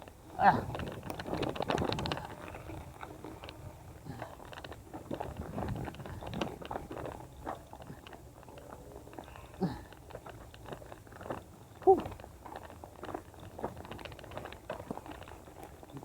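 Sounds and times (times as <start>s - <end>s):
bicycle tyres rolling on dirt: 0.0s - 16.0s
ground crunching and crackling: 0.1s - 16.0s.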